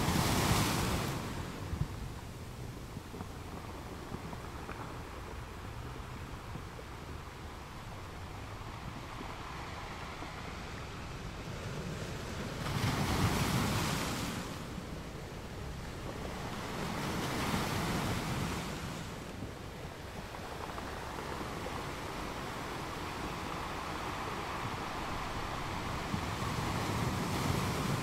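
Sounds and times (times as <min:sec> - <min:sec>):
ocean waves washing in: 0:05.7 - 0:28.0.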